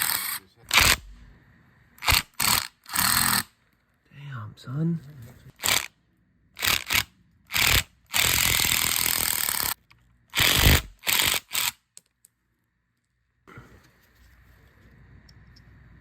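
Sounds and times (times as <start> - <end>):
impact driver hammering: 0.0 - 1.3.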